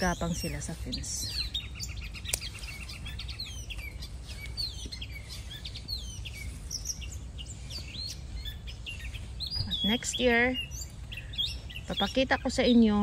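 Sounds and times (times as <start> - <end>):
small birds chirping: 0.0 - 13.0
steady low rumble: 0.0 - 13.0
scissors snipping stem: 2.3 - 2.5.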